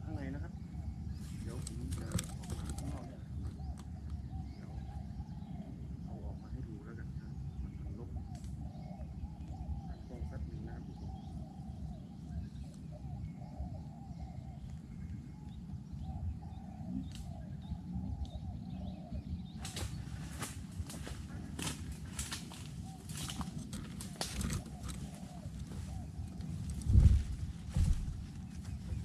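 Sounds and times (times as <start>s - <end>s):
doves cooing: 0.0s - 29.0s
low rumble: 0.0s - 29.0s
sharp rustling clicks: 1.5s - 3.1s, 19.6s - 26.9s.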